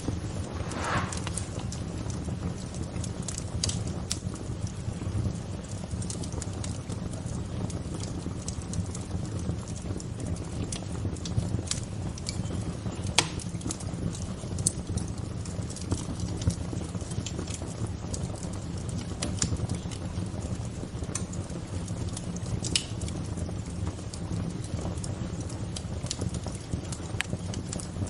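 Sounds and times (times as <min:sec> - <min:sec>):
low rushing noise: 0:00.0 - 0:02.1
wood fire crackling: 0:00.0 - 0:28.0.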